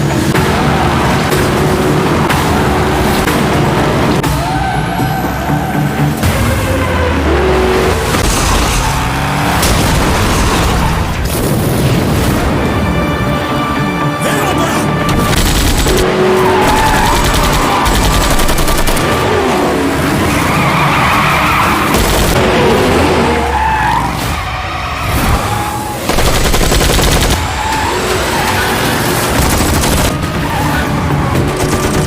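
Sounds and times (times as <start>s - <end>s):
tyres screeching and skidding: 0.0s - 12.8s, 15.8s - 26.2s, 27.2s - 32.0s
car noise: 0.0s - 32.0s
automatic gunfire: 26.1s - 27.4s.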